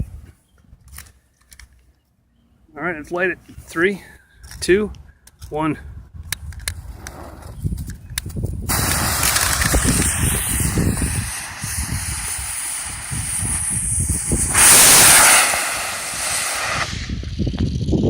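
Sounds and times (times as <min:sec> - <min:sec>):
rocket engine hiss: 0:08.7 - 0:18.0.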